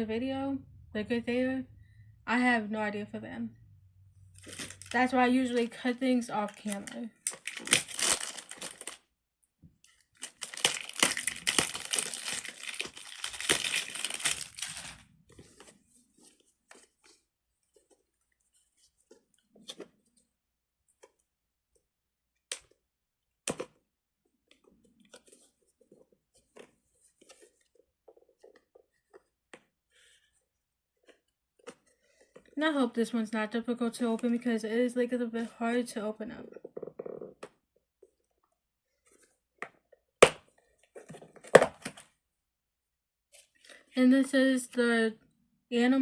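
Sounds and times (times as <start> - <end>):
plastic packaging crinkling: 4.4 - 5.2, 6.4 - 9.0, 9.9 - 15.3.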